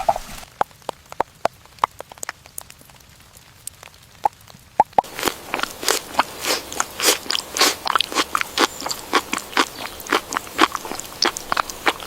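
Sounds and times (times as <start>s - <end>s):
dog chewing food crunchily: 5.0s - 12.0s.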